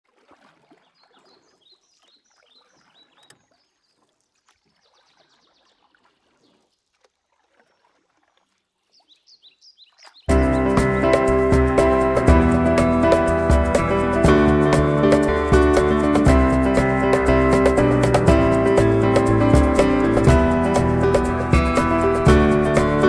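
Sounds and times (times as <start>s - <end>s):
faint birdsong chirps: 0.7s - 6.9s, 8.8s - 11.0s.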